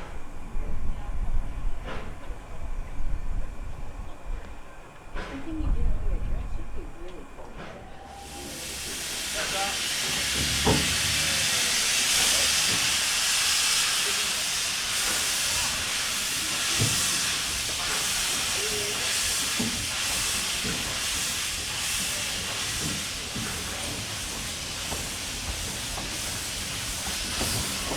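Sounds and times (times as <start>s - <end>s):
steam locomotive hissing: 6.8s - 27.9s.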